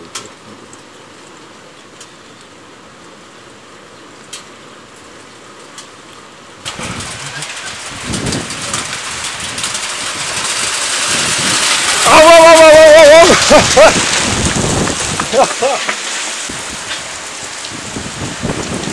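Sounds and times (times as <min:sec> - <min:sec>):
heavy wind-driven rain: 0:00.0 - 0:18.9
scattered raindrop ticks: 0:04.2 - 0:18.9.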